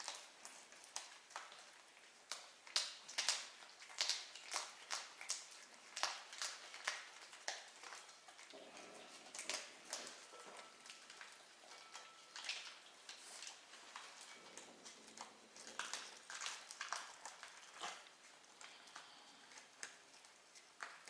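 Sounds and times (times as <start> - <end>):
kitten chewing and smacking: 0.0 - 21.0.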